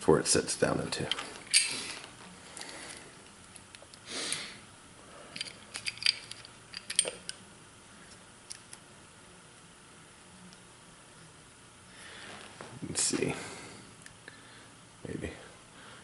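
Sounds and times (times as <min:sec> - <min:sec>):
metallic clicks of pistol parts: 0:05.4 - 0:07.4.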